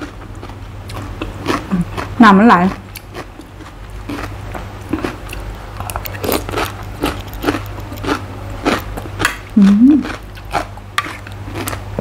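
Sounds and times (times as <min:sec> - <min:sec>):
chewing crisp cucumber: 0:00.0 - 0:12.0.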